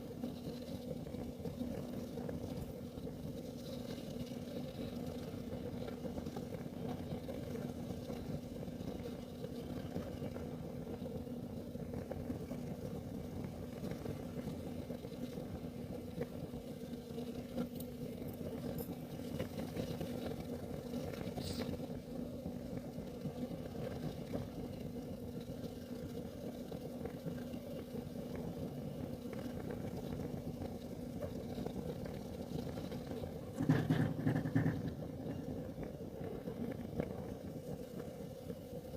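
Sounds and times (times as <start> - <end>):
heater burning with low rumble: 0.0 - 38.9.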